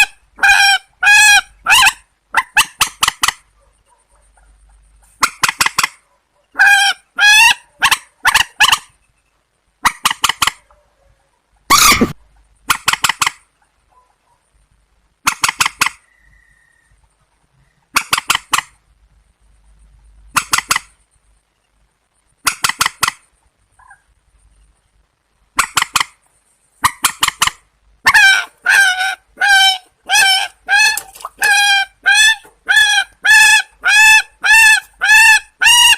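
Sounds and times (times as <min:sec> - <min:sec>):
harsh water bird calls: 0:26.8 - 0:35.9.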